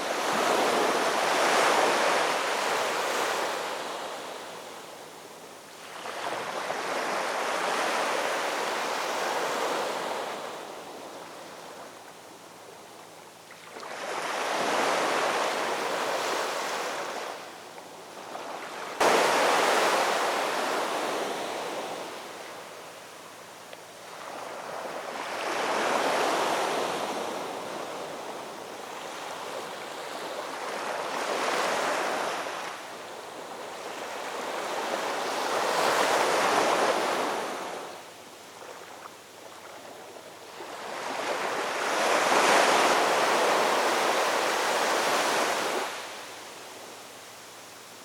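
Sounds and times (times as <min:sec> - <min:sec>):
ocean waves surging: 0:19.0 - 0:22.2.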